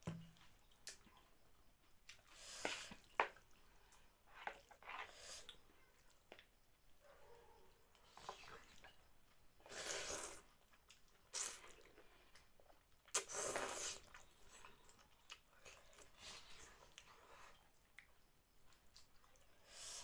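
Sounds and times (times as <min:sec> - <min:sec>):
slurping: 0:09.6 - 0:10.5, 0:13.1 - 0:15.0.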